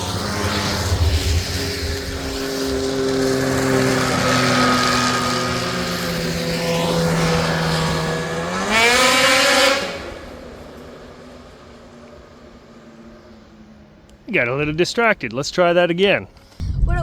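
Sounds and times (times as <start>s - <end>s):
vehicle engine revving: 0.0s - 13.1s.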